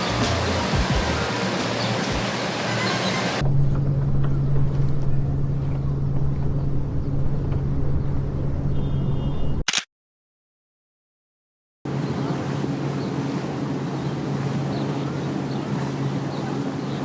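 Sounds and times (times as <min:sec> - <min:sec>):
low hum with rumble: 0:00.0 - 0:02.3, 0:03.4 - 0:09.6
steady rushing noise: 0:00.0 - 0:08.6.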